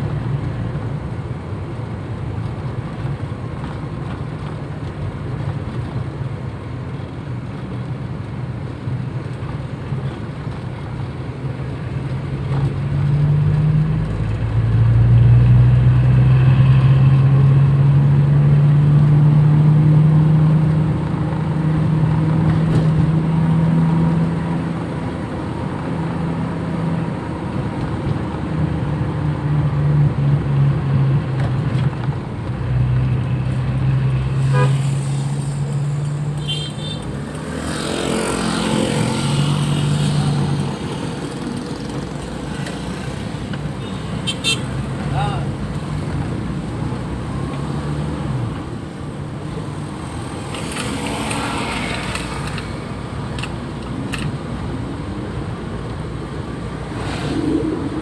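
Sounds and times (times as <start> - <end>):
car engine droning: 0.0 - 58.0
car horn toot: 34.4 - 35.1, 36.4 - 37.1, 43.8 - 45.4.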